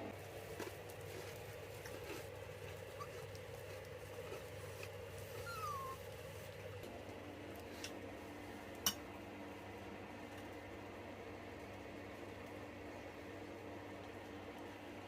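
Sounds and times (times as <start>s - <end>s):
pet animal high falling cry: 5.4s - 6.0s.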